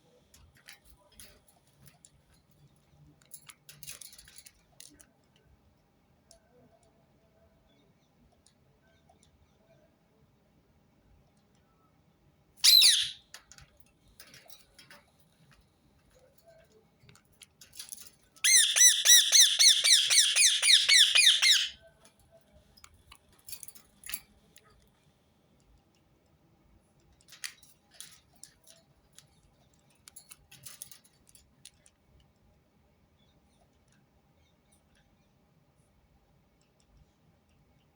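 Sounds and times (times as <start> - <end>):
parakeet screeching: 12.6 - 13.2, 18.5 - 21.7
shrill repeated bird notes: 12.6 - 13.2, 18.5 - 21.8
soft bird chirps and clicks: 12.6 - 21.8.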